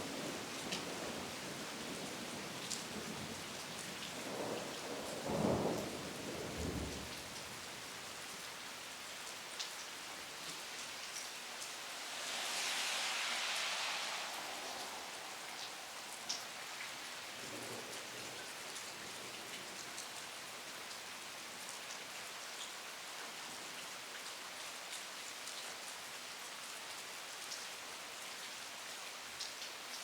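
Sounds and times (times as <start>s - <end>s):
low rumble of thunder: 0.0s - 7.6s, 13.6s - 19.8s
steady rain falling: 0.0s - 30.0s.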